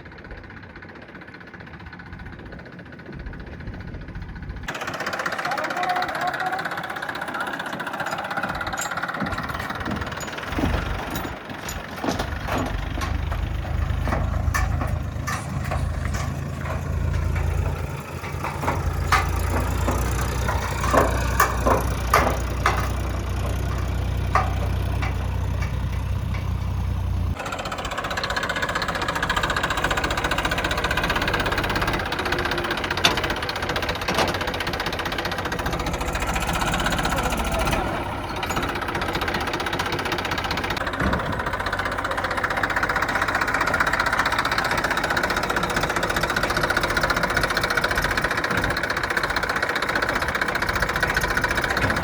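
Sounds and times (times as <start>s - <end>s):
tractor engine running: 0.0s - 52.0s
clicks and knocks: 7.4s - 27.0s.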